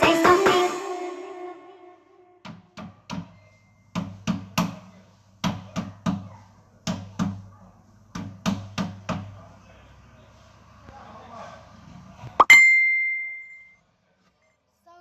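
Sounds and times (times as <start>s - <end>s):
music: 0.0s - 3.2s.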